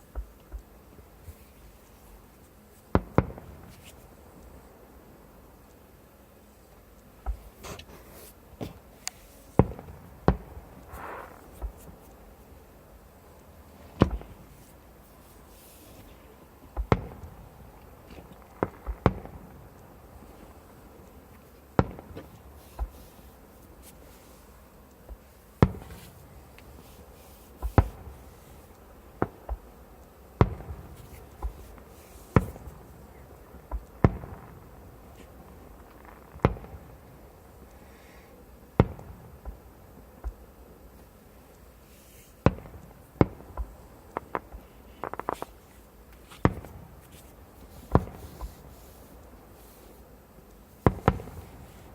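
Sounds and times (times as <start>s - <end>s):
fireworks bursting: 2.9s - 4.0s, 7.2s - 20.6s, 25.2s - 29.7s, 30.4s - 37.3s, 38.7s - 40.4s, 42.1s - 50.0s, 50.6s - 51.9s.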